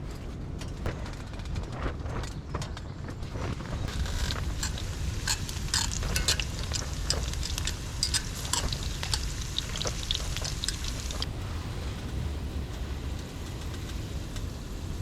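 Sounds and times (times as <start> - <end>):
low rumble of wind: 0.0 - 15.0
food frying and crackling: 3.2 - 15.0.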